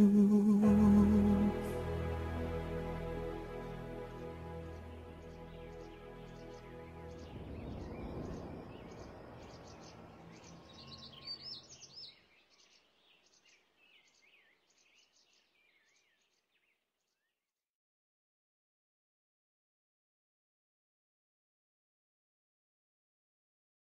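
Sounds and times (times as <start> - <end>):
song's final chord: 0.0 - 8.5
soft rushing ambience: 1.1 - 12.8
birds chirping high calls: 4.0 - 17.3.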